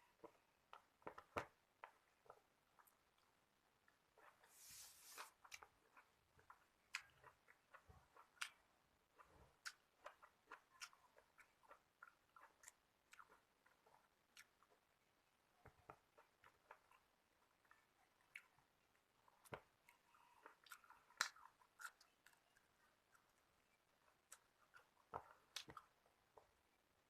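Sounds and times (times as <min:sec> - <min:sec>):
person chewing: 0:04.2 - 0:14.9, 0:19.2 - 0:26.0.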